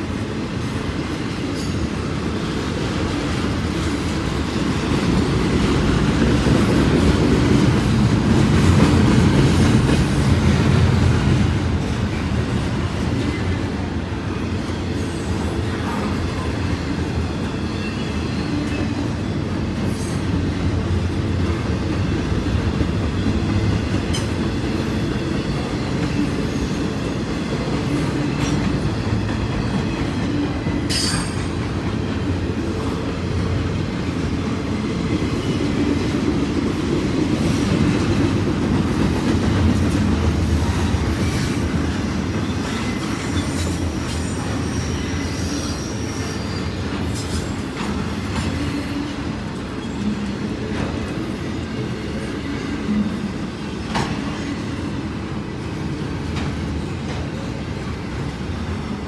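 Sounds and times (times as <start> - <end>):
train wheels rumbling on rail: 0.0 - 59.0
high wheel squeal: 42.4 - 50.2.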